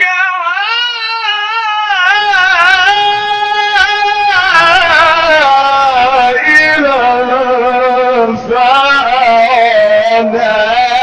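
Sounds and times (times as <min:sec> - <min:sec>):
person reciting melodically: 0:00.0 - 0:11.0.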